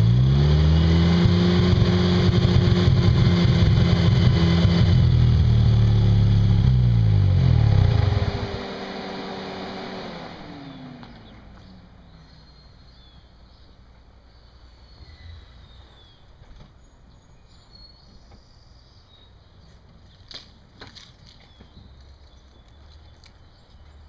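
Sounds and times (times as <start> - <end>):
rotary engine shutting off: 0.0 - 13.1
birds chirping: 8.5 - 24.0.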